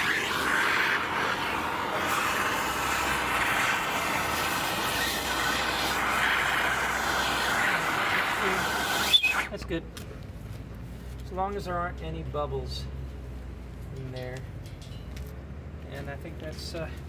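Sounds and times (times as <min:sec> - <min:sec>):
gas torch flame hissing: 0:00.0 - 0:09.6.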